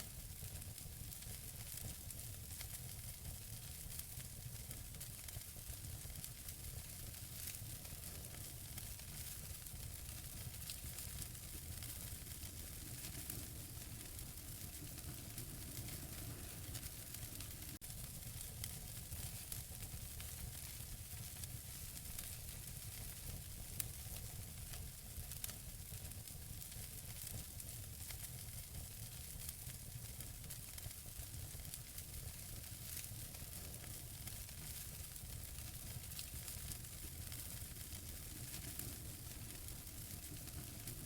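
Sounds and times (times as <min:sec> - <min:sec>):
wood fire crackling and popping: 0:00.1 - 0:41.0
low steady rumble: 0:10.5 - 0:17.8.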